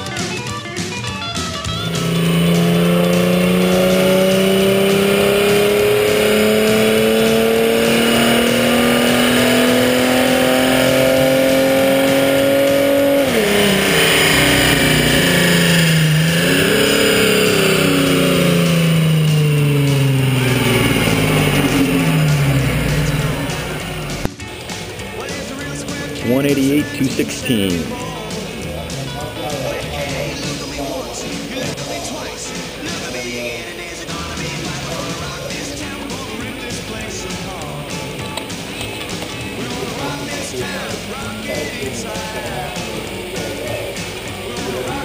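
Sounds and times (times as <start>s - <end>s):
car engine revving on dyno: 1.7s - 32.1s.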